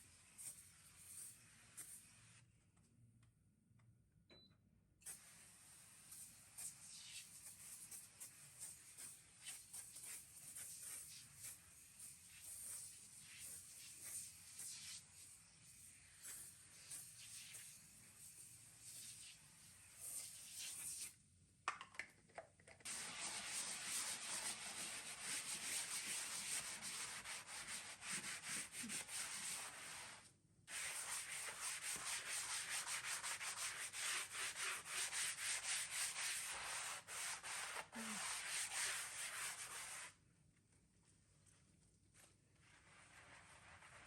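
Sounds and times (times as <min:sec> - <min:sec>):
rapid scrubbing of a surface: 0:22.9 - 0:40.2, 0:42.6 - 0:44.0.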